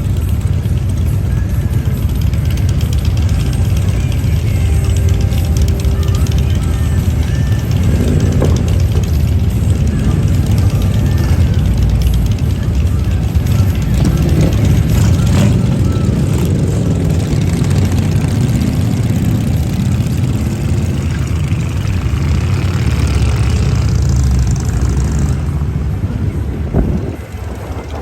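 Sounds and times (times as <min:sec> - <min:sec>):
motorcycle engine running: 0:00.0 - 0:28.0
wind rushing over microphone: 0:25.3 - 0:28.0.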